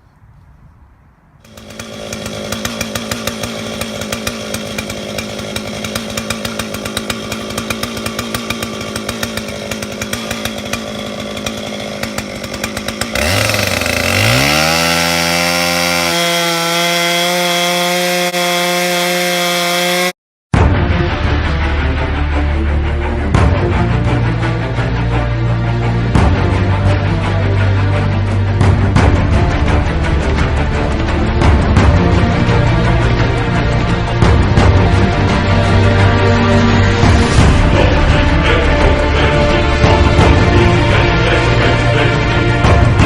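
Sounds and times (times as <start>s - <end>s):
chainsaw idling and revving: 1.4s - 20.2s, 31.4s - 43.0s.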